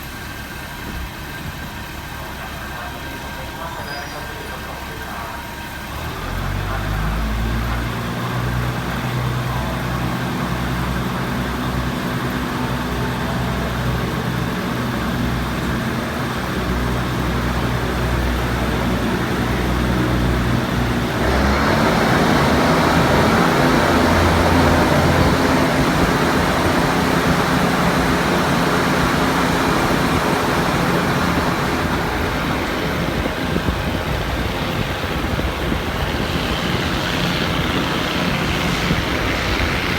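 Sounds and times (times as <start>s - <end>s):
diesel train engine drone: 0.0s - 39.9s
train wheels rumbling on rails: 6.4s - 39.9s.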